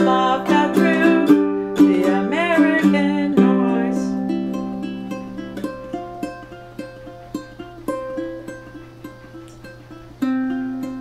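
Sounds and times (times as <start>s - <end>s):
ukulele plucked notes: 0.0s - 11.0s.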